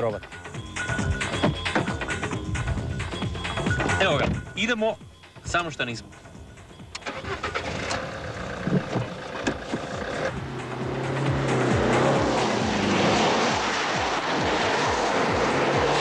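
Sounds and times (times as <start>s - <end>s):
car engine revving: 6.9s - 16.0s.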